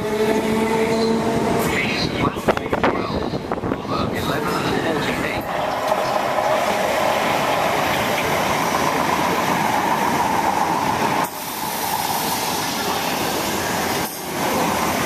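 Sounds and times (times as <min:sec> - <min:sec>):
train rushing past with whine: 0:00.0 - 0:15.0
wind buffeting microphone: 0:01.2 - 0:12.3.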